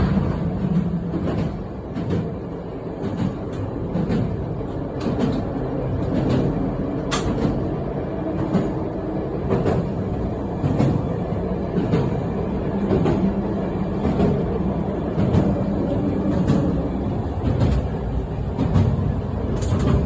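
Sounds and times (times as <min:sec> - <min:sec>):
train rumbling along track: 0:00.0 - 0:20.0
wheels clicking over rails: 0:16.2 - 0:20.0.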